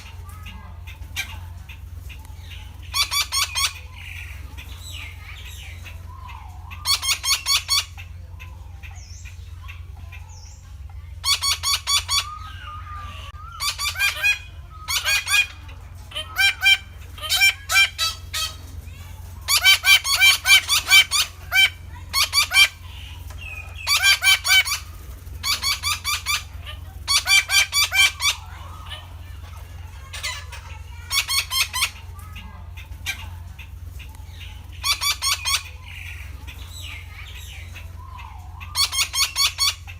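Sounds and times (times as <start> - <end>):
parakeets calling: 0.0 - 39.9
steady low hum: 0.0 - 39.9.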